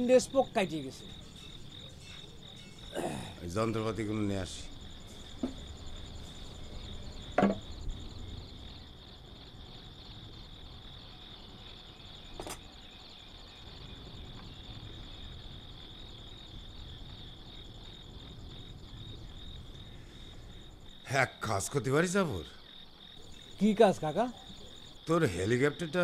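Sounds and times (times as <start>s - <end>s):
insects trilling: 0.0s - 26.0s
knocks: 5.2s - 6.0s, 7.2s - 7.8s.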